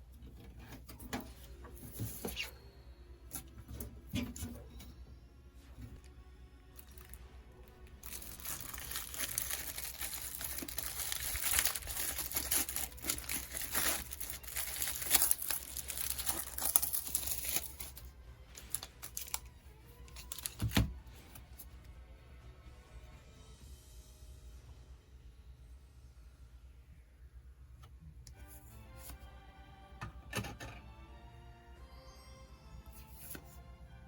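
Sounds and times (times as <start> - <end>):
plastic packaging crinkling and tearing: 6.8 - 7.2, 7.8 - 20.9.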